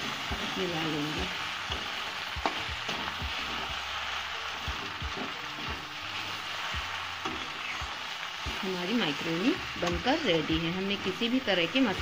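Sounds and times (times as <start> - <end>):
spatula scraping a pan: 0.0 - 11.6
food sizzling in a pan: 0.0 - 12.0.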